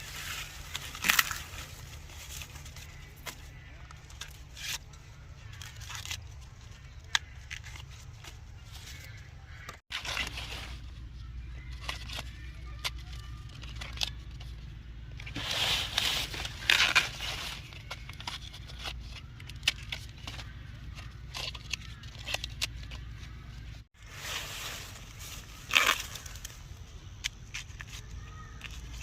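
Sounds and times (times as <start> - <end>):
dry corn leaves rustling: 0.0 - 29.0
corn ears snapping off: 0.2 - 6.2, 25.3 - 29.0.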